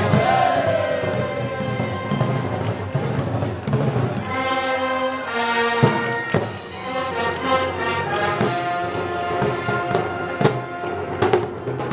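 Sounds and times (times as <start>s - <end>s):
drum strikes: 0.0s - 4.6s
brass band playing: 0.0s - 11.9s.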